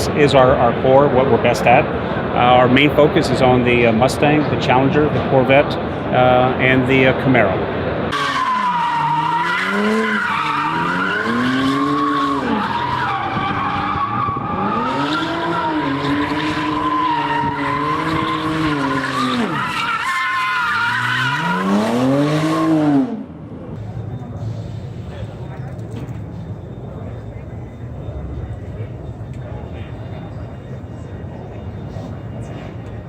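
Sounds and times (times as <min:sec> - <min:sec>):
car engine revving: 0:08.0 - 0:23.8
high tyre squeal: 0:08.1 - 0:33.0.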